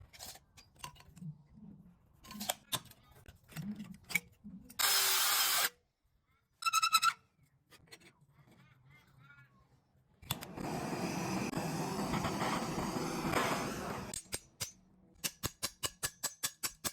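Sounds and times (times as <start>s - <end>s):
loud hiss: 10.4s - 14.2s.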